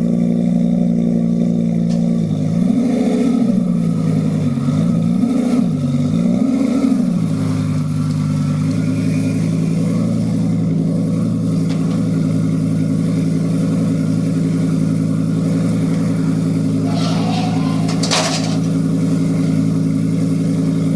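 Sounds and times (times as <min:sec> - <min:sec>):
car engine revving and idling: 0:00.0 - 0:20.9.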